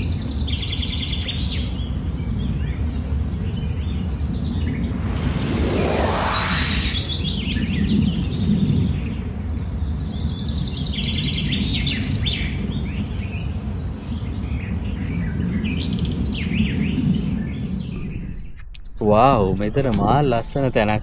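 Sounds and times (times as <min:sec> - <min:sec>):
steady low rumble: 0:04.6 - 0:07.8.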